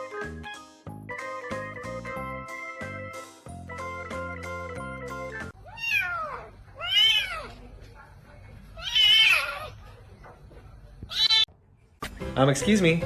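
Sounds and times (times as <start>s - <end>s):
cat meowing: 5.6s - 7.6s, 8.8s - 9.8s, 11.1s - 11.5s.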